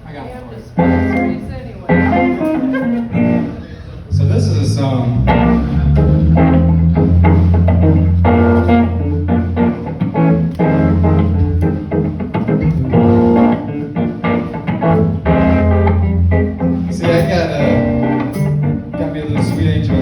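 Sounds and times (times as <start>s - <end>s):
plucked guitar notes: 0.8s - 20.0s
sustained low bass: 4.1s - 14.2s, 14.8s - 20.0s.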